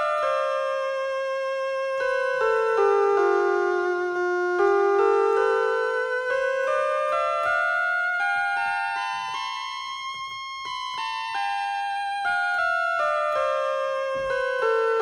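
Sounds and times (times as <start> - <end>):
electric piano synth melody: 0.0 - 15.0
faint steady beat: 13.3 - 15.0.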